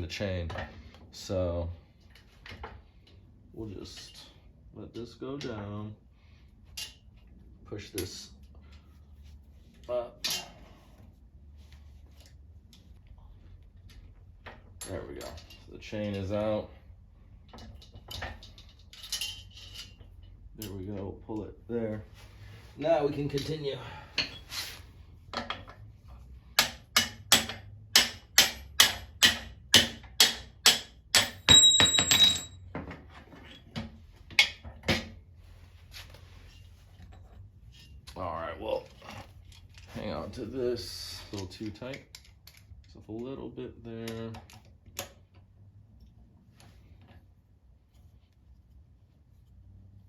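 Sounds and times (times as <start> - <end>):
low room hum: 0.0 - 50.0
hand tools clicking and scraping: 23.1 - 25.9
hammer striking steel: 26.6 - 32.6.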